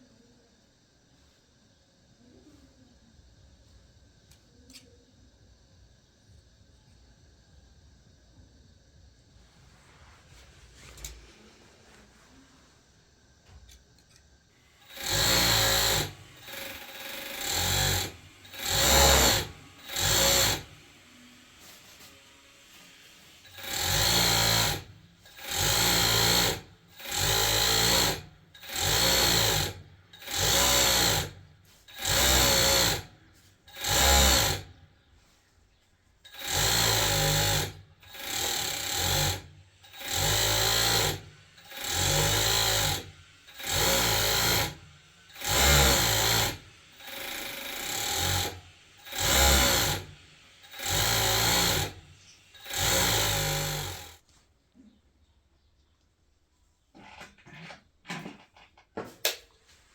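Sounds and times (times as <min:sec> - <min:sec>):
electric sewing machine running: 0:14.7 - 0:34.8, 0:36.3 - 0:54.2.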